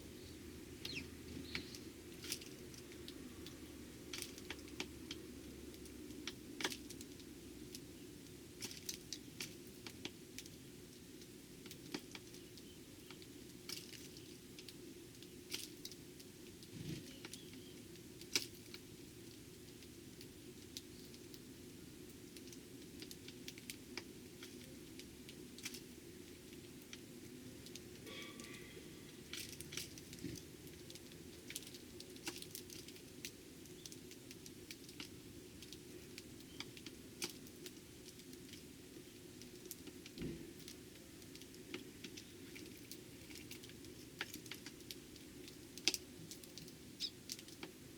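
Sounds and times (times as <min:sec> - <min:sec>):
sparrows pecking at seed: 0:00.0 - 0:10.1, 0:16.6 - 0:19.0, 0:22.3 - 0:47.8.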